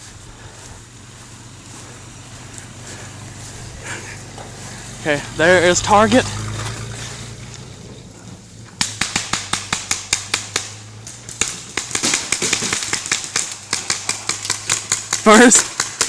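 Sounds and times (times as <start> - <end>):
paintball markers firing: 8.8 - 16.0.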